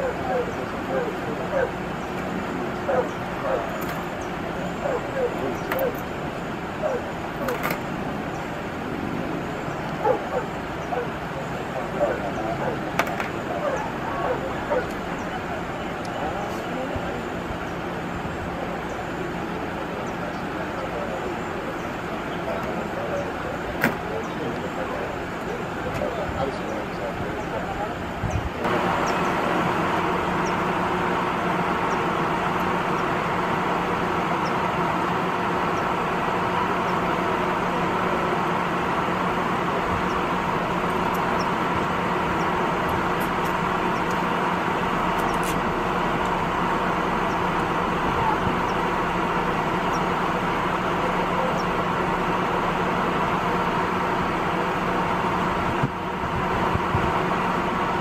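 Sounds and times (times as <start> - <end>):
engine drone: 0.0 - 58.0.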